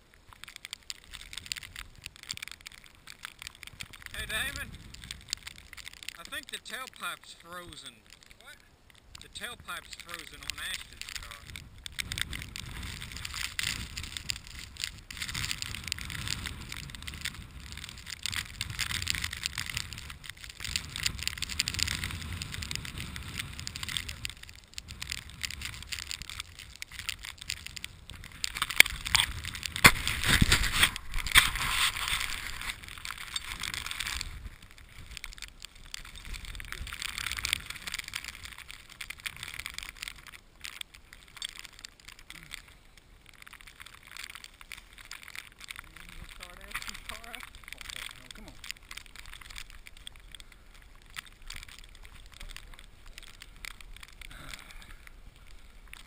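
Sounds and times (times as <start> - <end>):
wind buffeting microphone: 11.2 - 35.4
footsteps crunching through snow: 26.6 - 35.2.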